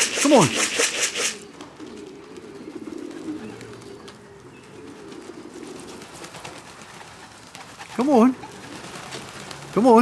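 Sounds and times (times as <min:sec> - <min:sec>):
pigeons cooing: 0:00.0 - 0:09.6.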